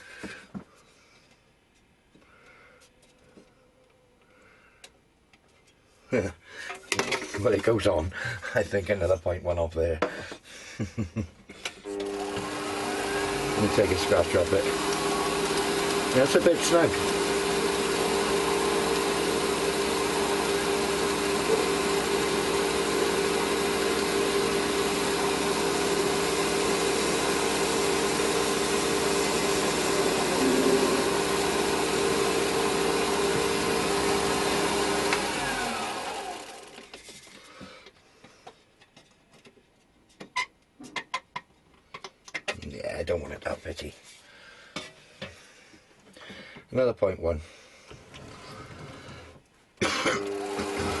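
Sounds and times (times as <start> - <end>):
metal lathe whining: 11.9 - 36.9, 50.2 - 51.0.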